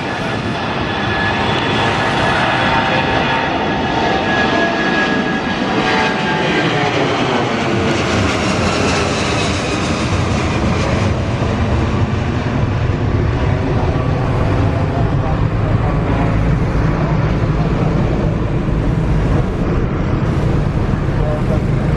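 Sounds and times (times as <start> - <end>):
jet engine whine: 0.0 - 21.9
jet engines roaring: 0.0 - 21.9
low rumble: 11.2 - 21.9.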